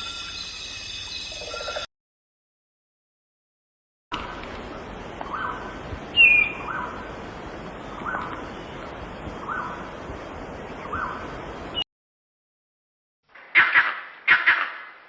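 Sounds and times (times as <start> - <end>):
steady background hiss: 4.2 - 11.8
birds calling: 5.2 - 7.1.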